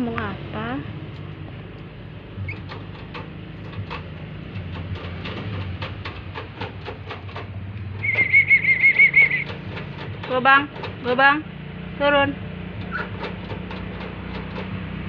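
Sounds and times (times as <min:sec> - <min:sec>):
parrot warbling whistle: 0:08.0 - 0:09.4.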